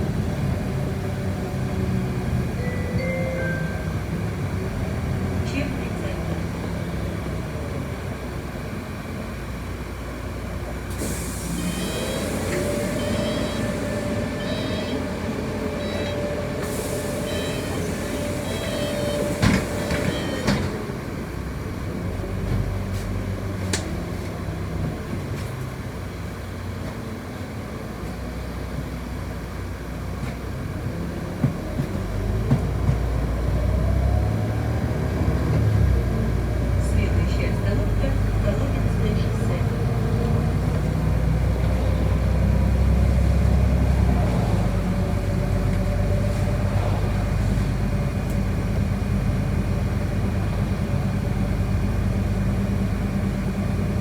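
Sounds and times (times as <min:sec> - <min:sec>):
bus engine running: 0:00.0 - 0:54.0
high beeps: 0:02.6 - 0:04.1.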